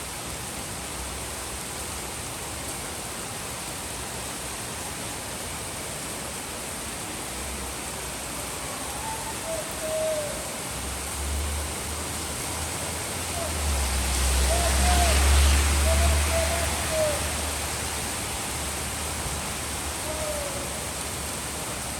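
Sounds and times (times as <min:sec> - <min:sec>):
steady rain falling: 0:00.0 - 0:21.9
faint downward bending call: 0:14.4 - 0:17.5.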